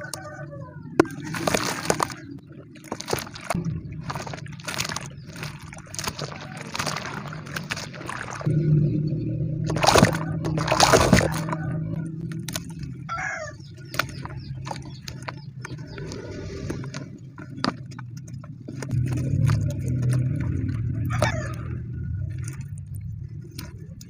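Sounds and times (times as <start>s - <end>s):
cement lumps crunching by hand: 1.0s - 8.5s, 9.7s - 24.0s
steady low hum: 7.5s - 24.0s
gritty crackling clicks: 9.7s - 24.0s.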